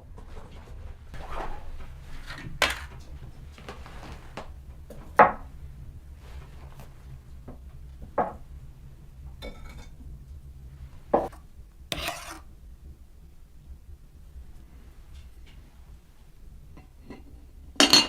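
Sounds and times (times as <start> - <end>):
steady low rumble: 2.8 - 11.9, 12.5 - 16.8.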